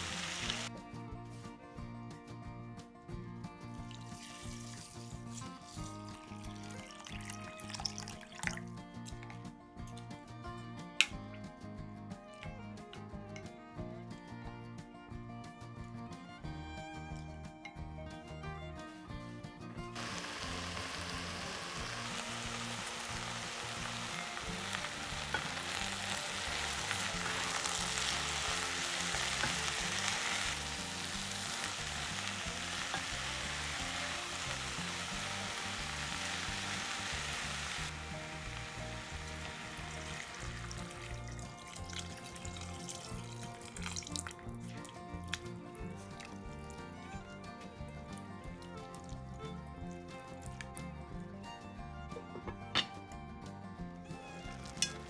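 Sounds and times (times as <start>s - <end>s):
vegetables frying in oil: 0.0s - 0.7s, 4.0s - 5.1s, 20.0s - 44.3s, 54.5s - 55.0s
background music: 0.0s - 55.0s.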